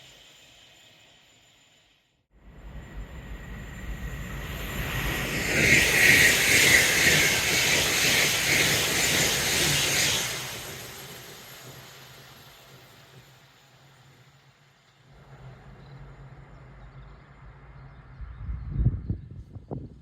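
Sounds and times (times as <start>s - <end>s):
wheels on rails: 2.6s - 18.3s.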